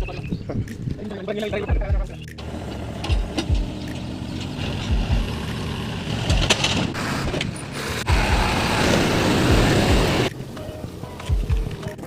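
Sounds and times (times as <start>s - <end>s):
construction machinery running: 2.4s - 11.0s.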